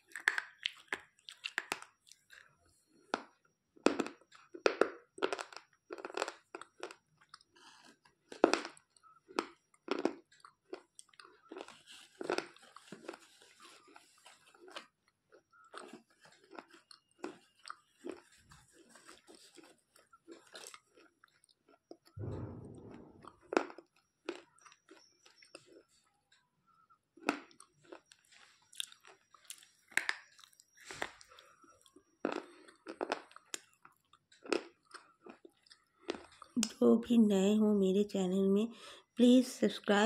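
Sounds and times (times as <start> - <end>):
soft chewing: 0.0 - 22.5, 24.0 - 36.8
low thump: 22.2 - 23.4.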